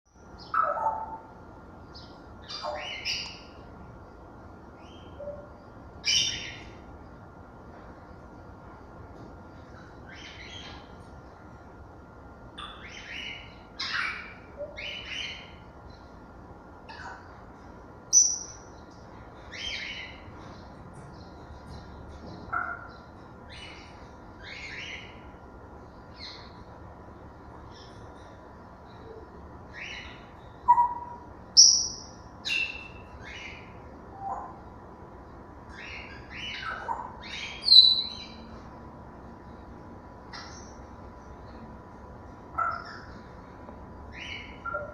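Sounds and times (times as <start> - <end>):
parrots whistling and calling: 0.4 - 1.3, 2.4 - 3.6, 4.8 - 6.8, 12.6 - 15.6, 16.9 - 17.3, 18.1 - 18.7, 19.5 - 20.3, 22.5 - 25.3, 29.7 - 34.6, 35.7 - 38.4, 42.5 - 43.2, 44.1 - 44.9.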